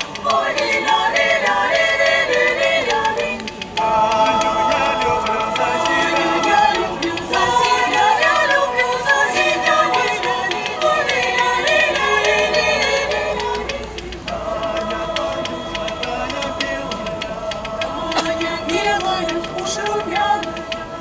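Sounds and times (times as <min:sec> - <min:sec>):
small choir singing: 0:00.0 - 0:21.0.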